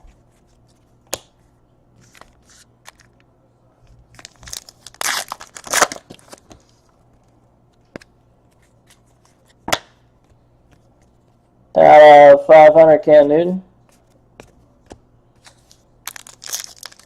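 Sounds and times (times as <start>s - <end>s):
wrapper tearing and crinkling: 4.1s - 6.4s, 16.0s - 17.0s.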